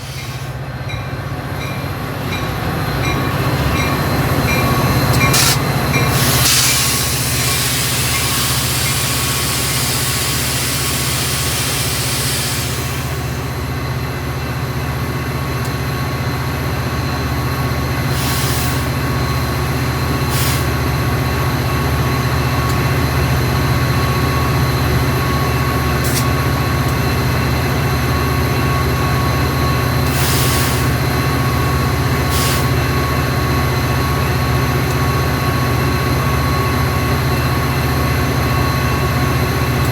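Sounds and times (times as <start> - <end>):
diesel train engine rumble: 0.0 - 39.9
air hissing: 5.3 - 13.5, 18.1 - 20.8, 30.1 - 31.2, 32.2 - 32.8.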